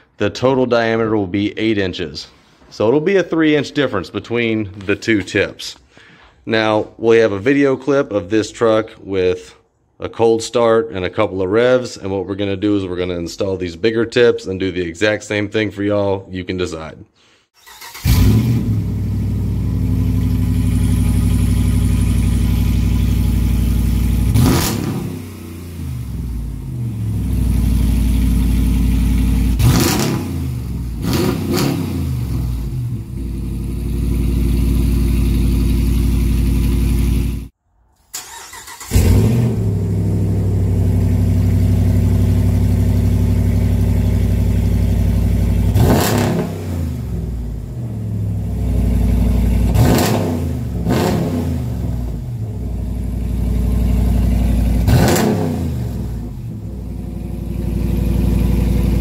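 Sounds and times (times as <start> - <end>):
pickup truck engine idling and revving: 18.0 - 37.5, 38.9 - 59.0.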